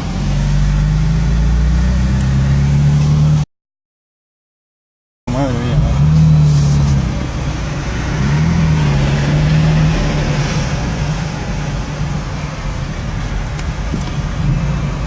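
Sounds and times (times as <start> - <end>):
car engine running loudly: 5.3 - 15.0.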